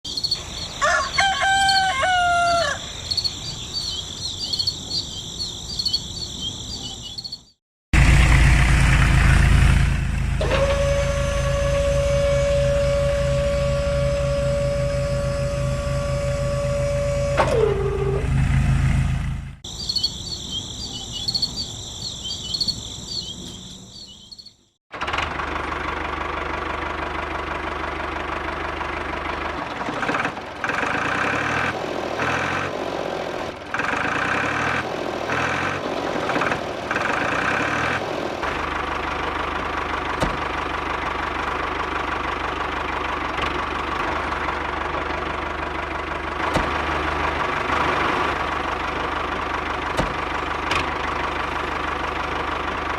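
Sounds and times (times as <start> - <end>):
small motor idling: 8.0 - 19.4, 38.4 - 52.9.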